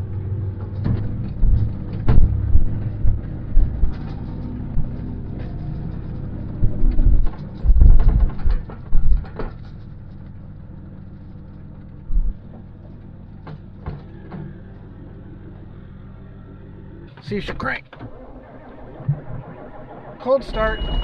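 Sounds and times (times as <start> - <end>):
heavy low thumps: 0.0 - 9.4
vehicle engine running: 0.0 - 21.0.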